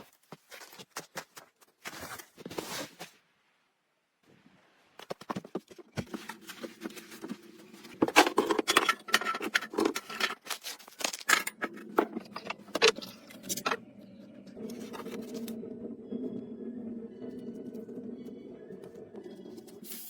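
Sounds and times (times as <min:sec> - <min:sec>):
small hard objects clattering: 0:05.3 - 0:13.9
steady low hum: 0:11.5 - 0:20.0.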